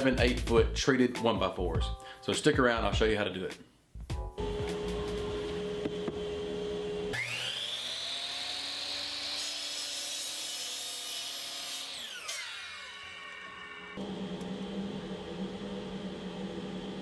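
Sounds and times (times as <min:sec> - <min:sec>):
electric power saw whine: 0:04.4 - 0:17.0
saw cutting through board: 0:07.1 - 0:14.0.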